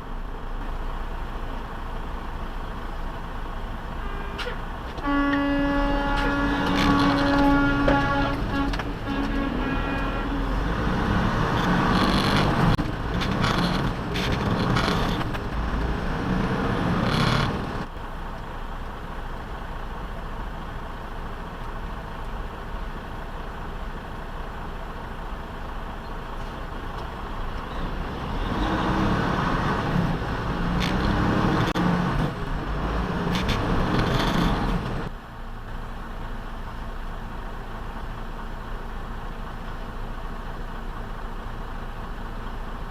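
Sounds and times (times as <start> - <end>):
road traffic and engine noise: 0.0 - 42.9.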